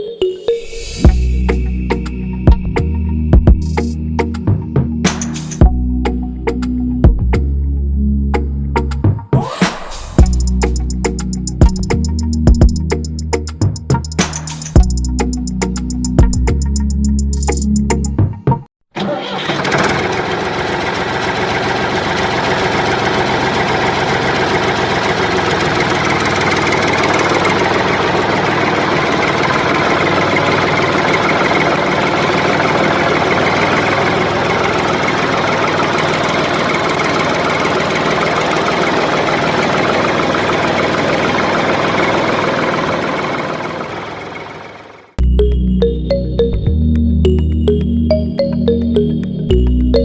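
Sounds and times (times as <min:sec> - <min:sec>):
tractor engine knocking: 0:10.2 - 0:15.2, 0:19.0 - 0:45.2.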